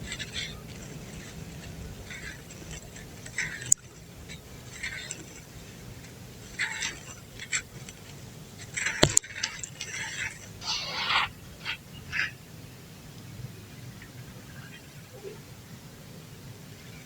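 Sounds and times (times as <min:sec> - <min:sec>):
sharp cracks: 0:00.0 - 0:11.4
dry dirt crumbling: 0:00.0 - 0:12.3.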